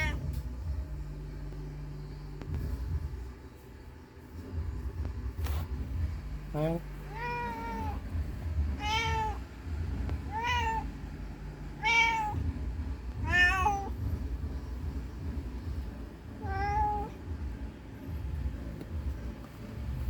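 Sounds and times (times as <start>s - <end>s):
cat meowing: 0.0s - 0.3s, 7.1s - 9.4s, 10.2s - 11.0s, 11.8s - 12.5s, 13.2s - 14.0s, 16.4s - 17.2s.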